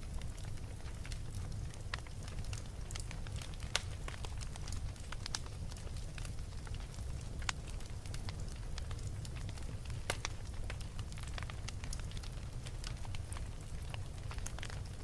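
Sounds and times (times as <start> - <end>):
fire crackling and popping: 0.0 - 15.0
wood fire rumbling: 0.0 - 15.0.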